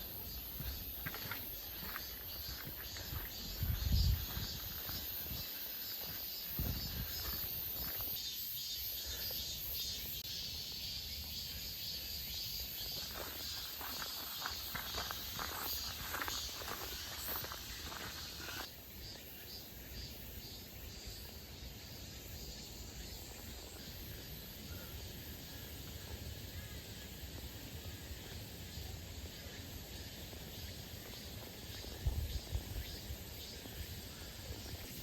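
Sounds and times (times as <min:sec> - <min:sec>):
footsteps on a trail: 0:00.0 - 0:08.4, 0:12.8 - 0:18.7
wind rumble on microphone: 0:03.0 - 0:05.4, 0:06.6 - 0:07.4, 0:31.8 - 0:33.1.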